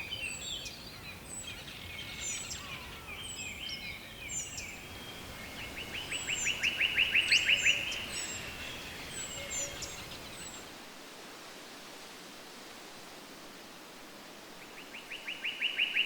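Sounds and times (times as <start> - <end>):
birds chirping: 0.0 - 10.7.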